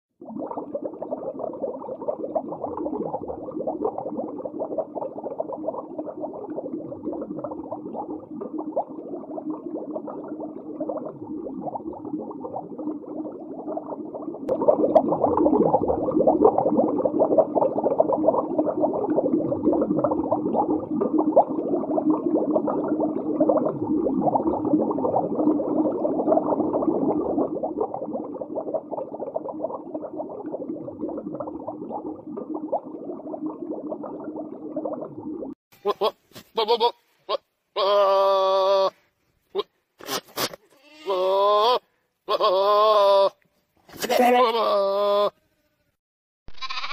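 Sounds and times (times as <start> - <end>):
underwater bubbling and gurgling: 0.2 - 35.6.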